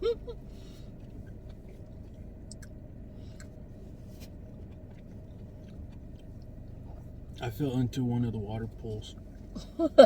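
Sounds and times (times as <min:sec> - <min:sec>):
person chewing food: 0:01.0 - 0:03.6, 0:04.2 - 0:07.2
wet mouth clicks: 0:02.5 - 0:02.8.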